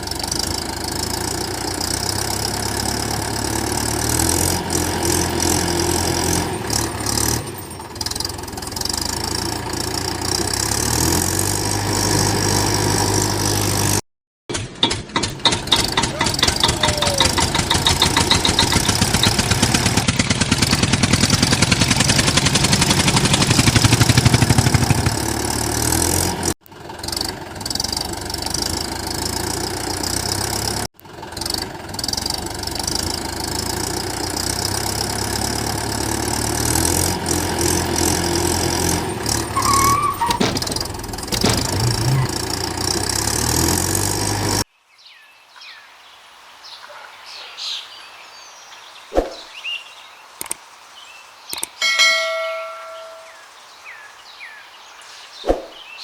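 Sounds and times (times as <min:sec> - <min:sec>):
engine running: 0:00.0 - 0:44.7.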